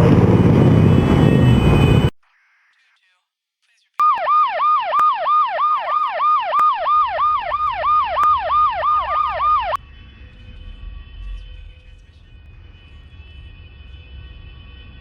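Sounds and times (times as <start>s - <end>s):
low rumble: 0.0s - 2.2s, 7.2s - 15.0s
police siren yelping: 4.0s - 9.8s.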